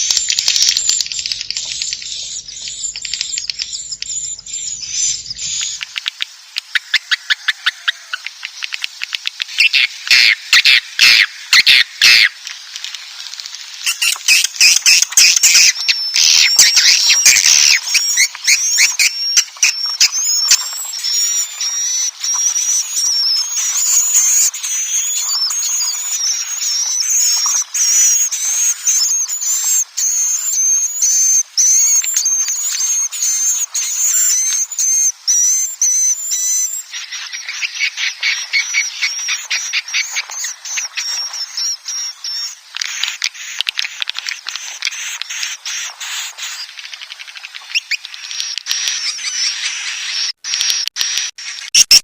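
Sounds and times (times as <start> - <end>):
high wavering bird twitter: 0.0 - 6.0, 13.8 - 43.6
rapid clicking chirps: 0.0 - 10.8, 12.1 - 52.0.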